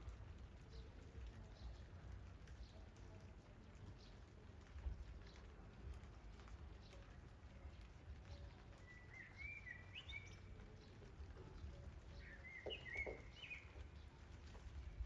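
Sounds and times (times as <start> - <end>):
songbird warbling chirps: 8.3 - 14.2.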